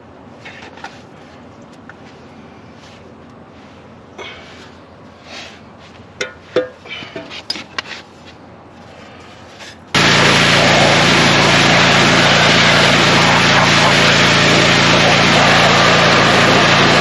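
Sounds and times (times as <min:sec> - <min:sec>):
loud steady engine: 0:08.9 - 0:17.0.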